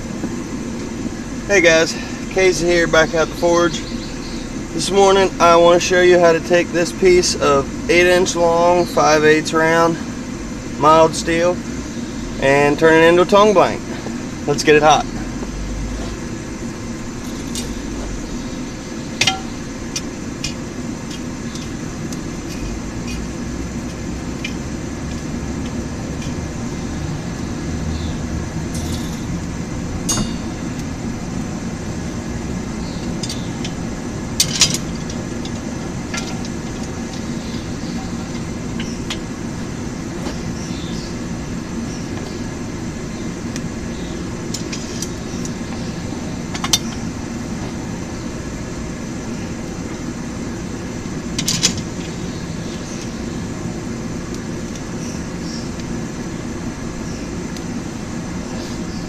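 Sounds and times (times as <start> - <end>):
metallic clinks: 28.7 - 29.4, 30.0 - 30.9.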